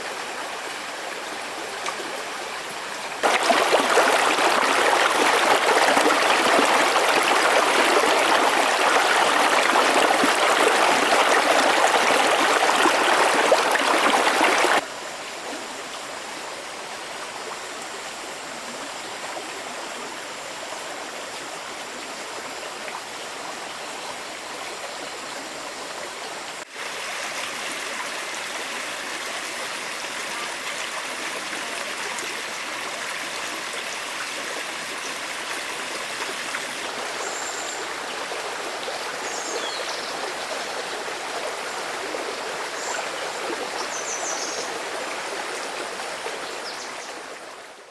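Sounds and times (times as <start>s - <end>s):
stream water rushing: 0.0s - 14.9s, 22.8s - 47.9s.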